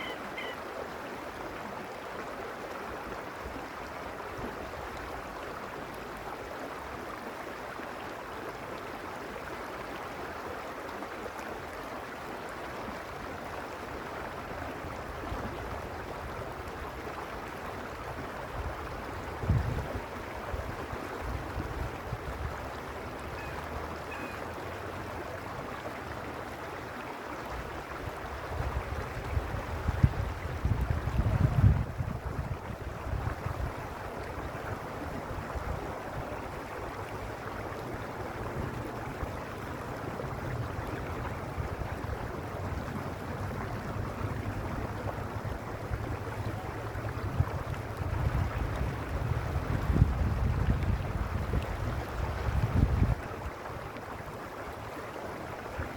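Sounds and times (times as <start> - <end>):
stream water rushing: 0.0 - 55.9
wind buffeting microphone: 18.6 - 22.7, 28.2 - 36.3, 40.0 - 53.5.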